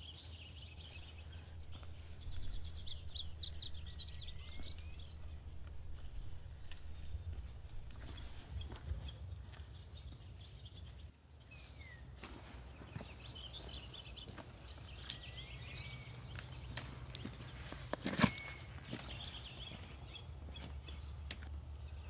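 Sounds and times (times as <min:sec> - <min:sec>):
small birds chirping: 0:00.0 - 0:22.0
footsteps on a trail: 0:00.1 - 0:21.6
low rumble: 0:01.0 - 0:09.5.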